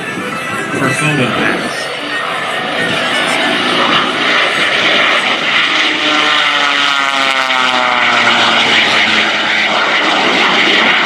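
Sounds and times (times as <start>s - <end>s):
biplane flying past: 0.0s - 11.0s.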